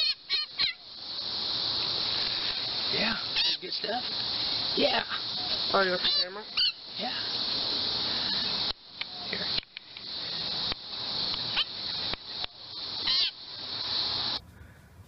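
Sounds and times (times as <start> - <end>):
wavering bird calls: 0.0 - 2.4, 3.1 - 4.6, 5.2 - 7.0, 7.6 - 15.0
steady hiss: 0.0 - 15.0.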